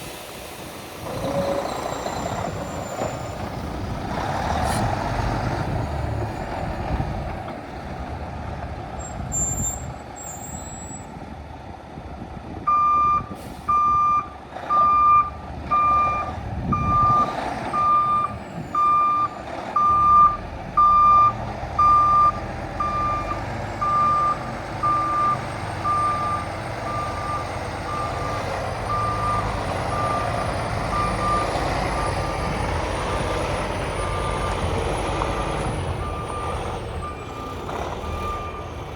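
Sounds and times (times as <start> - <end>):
truck diesel engine running: 14.3 - 38.9.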